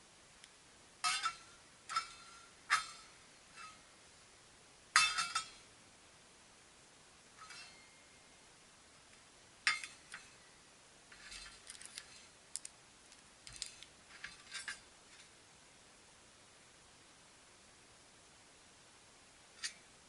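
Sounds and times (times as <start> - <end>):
small metal parts clicking: 11.1 - 15.3.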